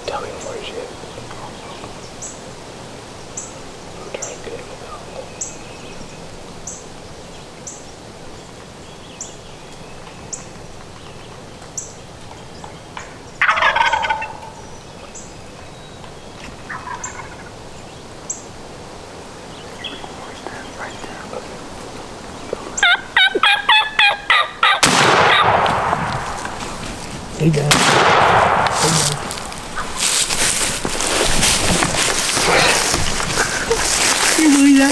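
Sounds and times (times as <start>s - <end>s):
turkey gobbling: 13.4s - 14.6s, 16.6s - 17.6s, 19.2s - 34.9s
turkey yelping notes: 19.9s - 27.3s.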